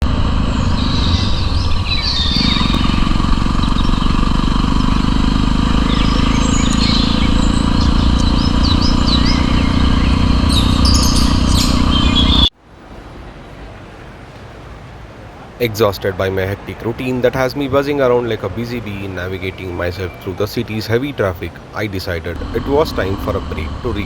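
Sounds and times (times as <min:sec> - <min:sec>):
loud low rumble: 0:00.0 - 0:12.5, 0:22.4 - 0:24.0
birds chirping and singing: 0:00.6 - 0:12.5.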